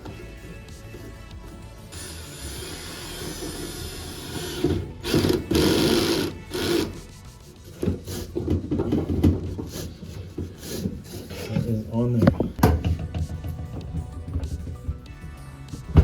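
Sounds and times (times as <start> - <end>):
background music: 0.0 - 16.0
brush scraping inside duct: 0.6 - 12.1
cordless drill spinning: 1.6 - 7.0.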